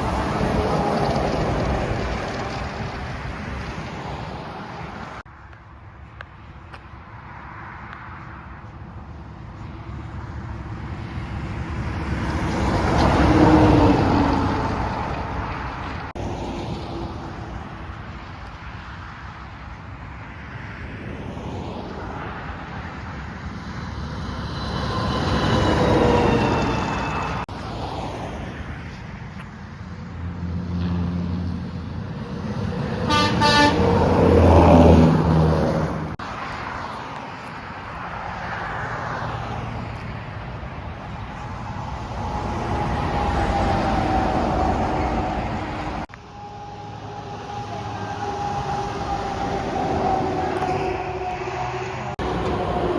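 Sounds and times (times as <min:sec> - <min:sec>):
trucks and traffic passing: 0:00.0 - 0:52.9
truck horn blasts and toots: 0:33.0 - 0:34.7.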